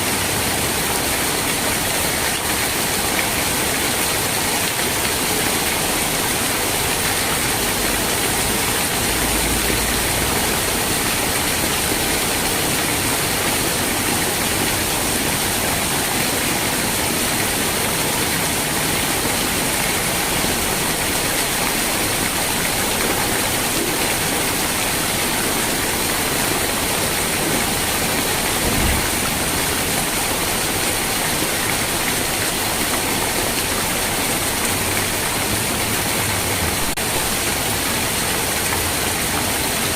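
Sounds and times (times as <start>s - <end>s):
steady rain falling: 0.0s - 39.9s
soft low thump: 28.6s - 29.4s.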